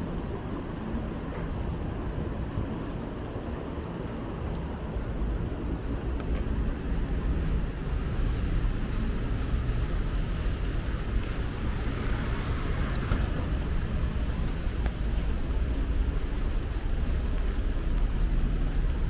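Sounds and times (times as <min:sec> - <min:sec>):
traffic engines rumbling: 0:00.0 - 0:19.0
tyres hissing on wet road: 0:08.4 - 0:17.6.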